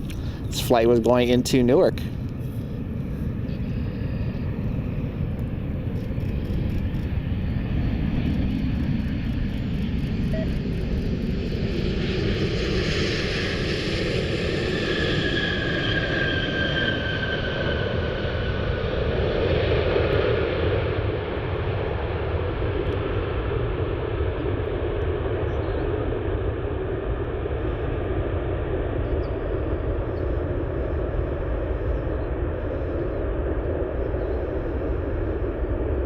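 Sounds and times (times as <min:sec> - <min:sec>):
high engine whine: 0:00.0 - 0:21.5
jet engine rumble: 0:00.0 - 0:36.0.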